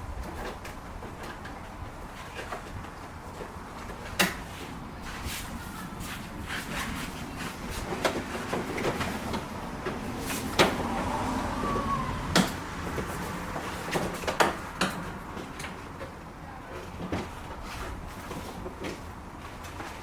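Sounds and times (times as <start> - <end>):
car parts clicking and knocking: 0.2 - 4.7, 12.3 - 20.0.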